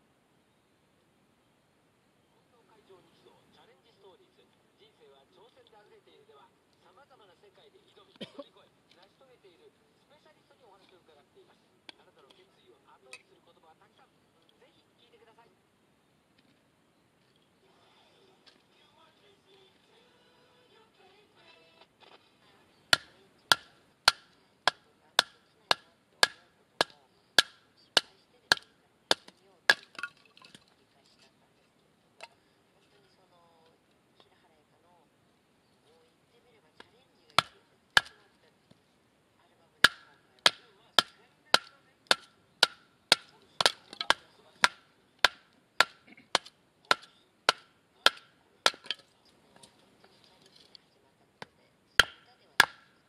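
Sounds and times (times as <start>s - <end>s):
wood striking hatchet knocks: 22.9s - 30.2s, 37.4s - 38.2s, 39.8s - 49.0s, 51.4s - 53.0s.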